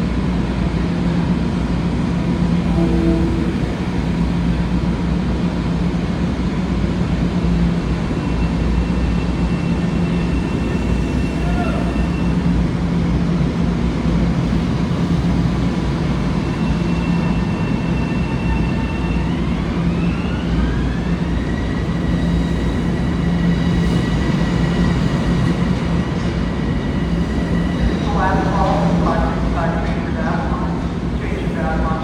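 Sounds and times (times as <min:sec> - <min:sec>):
electric train rumbling: 0:00.0 - 0:32.0
traction motor whine: 0:02.6 - 0:05.0.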